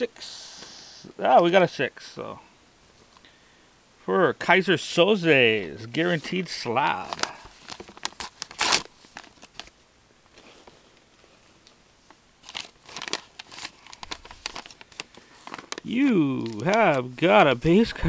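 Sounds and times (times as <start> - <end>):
plastic packaging crinkling: 6.0 - 10.6, 12.4 - 17.6.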